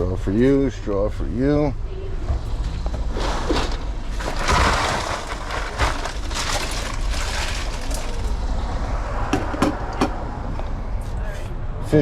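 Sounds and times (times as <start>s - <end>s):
paper and bag rustling: 3.2s - 8.4s.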